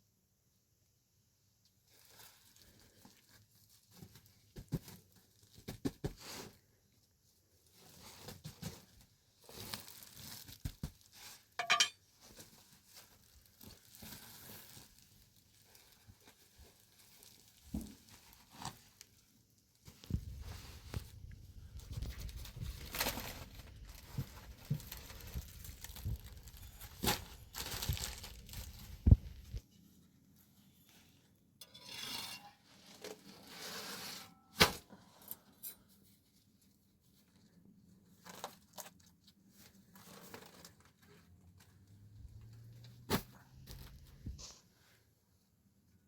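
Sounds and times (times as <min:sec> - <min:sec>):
rustling and tearing: 0:07.7 - 0:11.5, 0:19.9 - 0:29.6, 0:38.1 - 0:41.9.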